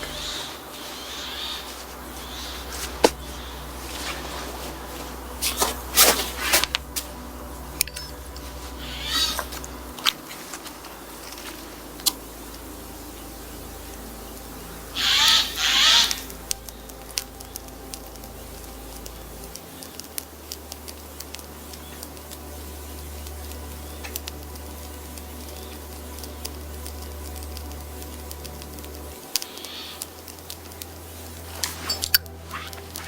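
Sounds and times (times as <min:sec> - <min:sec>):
animal call with wavering pitch: 0:00.0 - 0:04.7, 0:07.9 - 0:10.1, 0:15.0 - 0:16.3
wood snapping: 0:01.6 - 0:03.4.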